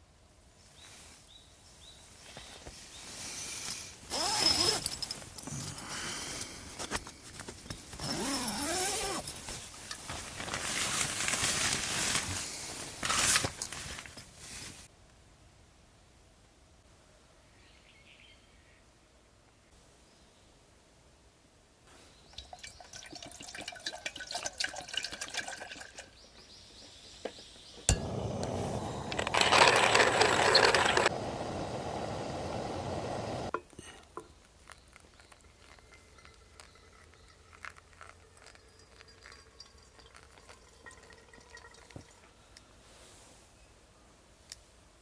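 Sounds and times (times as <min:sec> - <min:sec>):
liquid pouring: 0:22.4 - 0:26.1, 0:34.6 - 0:42.3.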